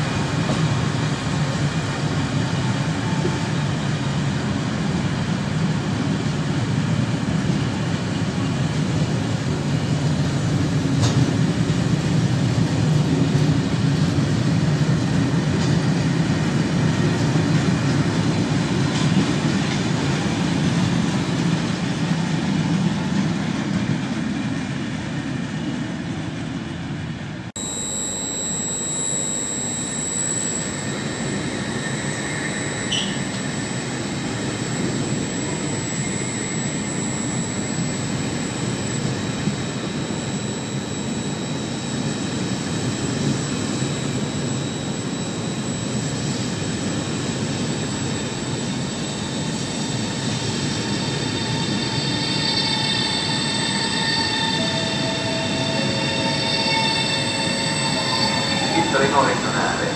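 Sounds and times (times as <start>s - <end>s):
high-speed train rushing past: 0.0s - 27.5s, 30.3s - 59.9s
high electric whine: 27.6s - 59.9s.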